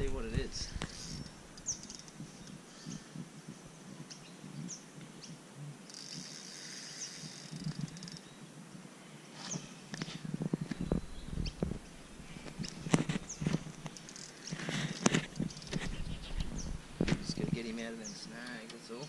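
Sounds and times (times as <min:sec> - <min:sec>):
bird chirps: 0:00.9 - 0:03.1, 0:12.3 - 0:16.8.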